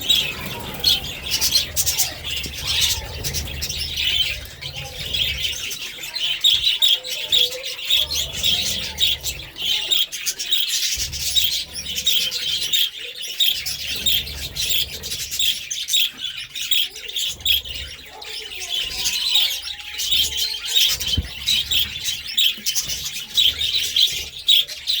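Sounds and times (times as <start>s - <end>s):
budgerigars chirping and warbling: 0.0s - 25.0s.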